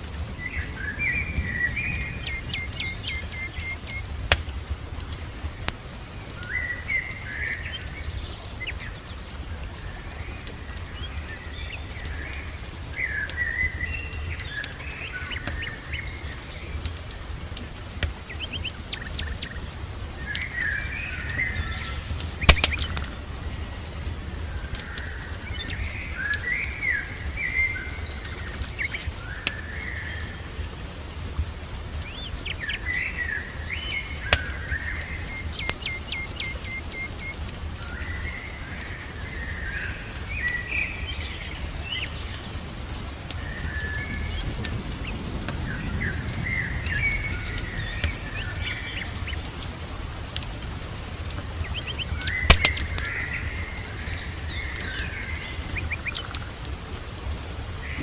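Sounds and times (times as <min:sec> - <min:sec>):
songbirds chirping: 0:00.0 - 0:58.0
sharp pops: 0:03.9 - 0:05.1, 0:22.2 - 0:23.1, 0:52.2 - 0:53.2.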